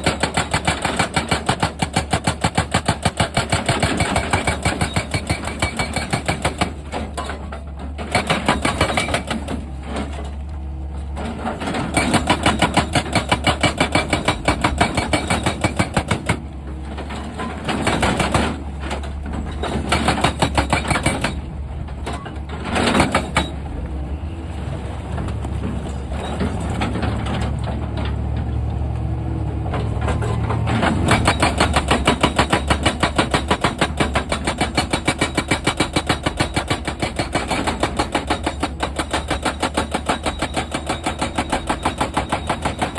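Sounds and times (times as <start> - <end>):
hydraulic rock breaker hammering: 0.0 - 9.6, 11.5 - 16.5, 19.5 - 21.5, 30.6 - 42.9.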